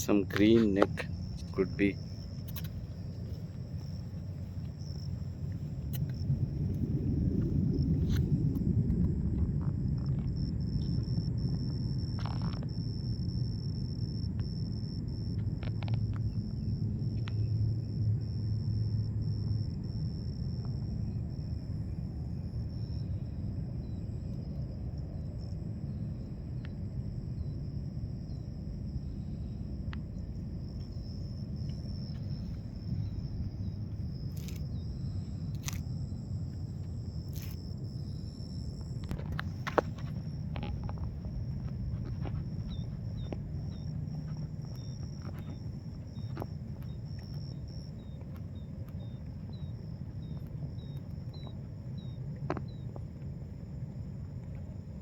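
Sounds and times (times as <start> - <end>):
low rumble: 0.0 - 55.0
small chirps: 1.4 - 3.5.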